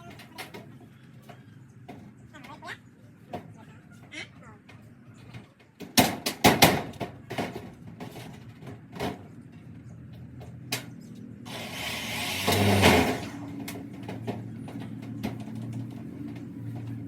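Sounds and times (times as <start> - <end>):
metal knocks and clanks: 4.6 - 11.0, 12.5 - 17.0.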